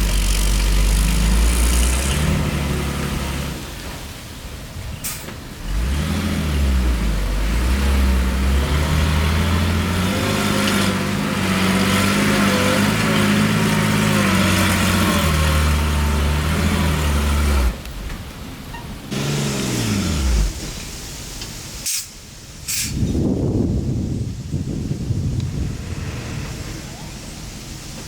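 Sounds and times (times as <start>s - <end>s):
heavy diesel engine revving: 0.0s - 4.1s, 5.6s - 17.9s, 19.1s - 21.0s.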